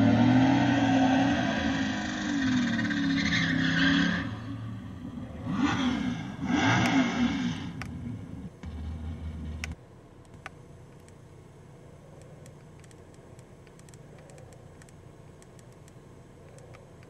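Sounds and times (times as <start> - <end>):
engine revving over car speakers: 0.0 - 9.8
faint clicks: 12.2 - 17.0.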